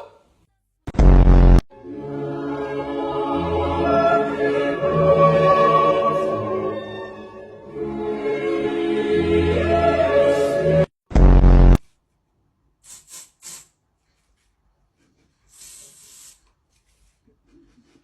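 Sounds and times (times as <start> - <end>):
choir singing sustained notes: 1.8 - 10.9.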